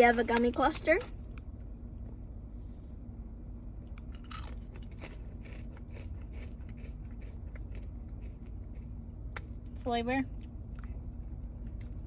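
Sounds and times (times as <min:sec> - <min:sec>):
crunchy candy being chewed: 0:03.9 - 0:09.7.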